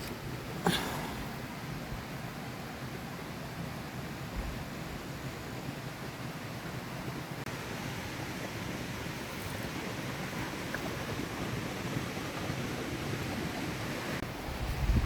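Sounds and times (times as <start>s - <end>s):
river water rushing: 0.0s - 14.6s.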